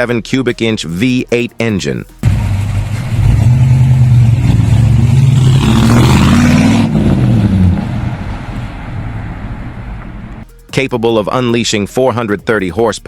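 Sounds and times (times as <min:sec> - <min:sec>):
muscle car engine revving: 0:02.2 - 0:10.4.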